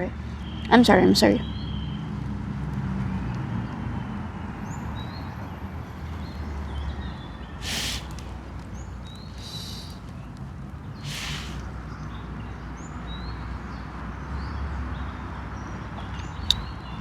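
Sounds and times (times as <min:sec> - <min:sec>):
faint bird chirps: 0:04.6 - 0:13.4
rustling: 0:07.1 - 0:11.7.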